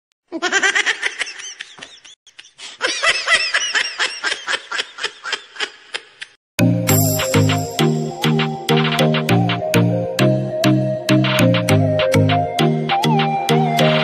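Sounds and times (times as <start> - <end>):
person laughing high-pitched: 0.3 - 6.3.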